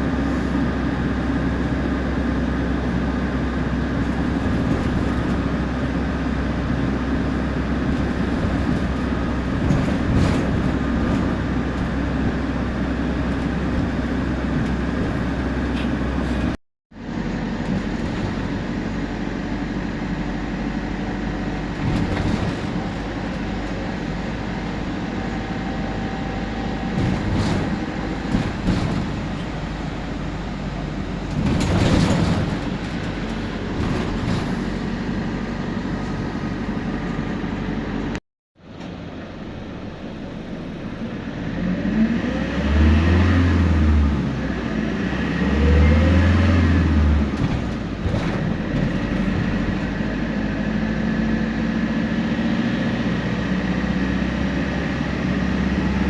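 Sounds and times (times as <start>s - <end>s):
bus engine drone: 0.0s - 56.0s
knocks and rattles: 7.9s - 12.4s, 21.8s - 23.4s, 26.9s - 30.2s, 30.9s - 35.2s, 47.3s - 50.0s.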